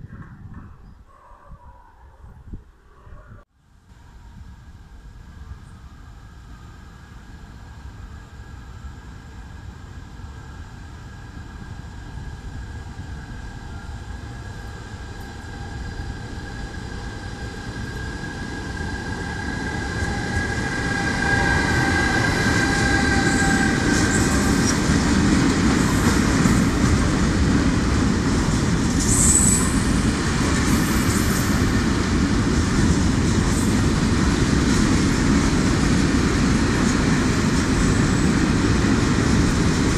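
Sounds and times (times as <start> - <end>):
locomotive high whine: 3.9 - 39.9
brief high squeal: 29.1 - 29.8.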